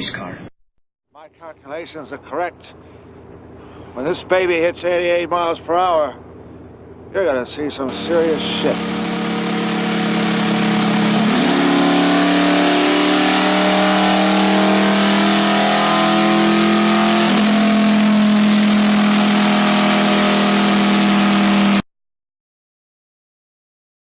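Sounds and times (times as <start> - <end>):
racing car engine at high revs: 7.9 - 21.8.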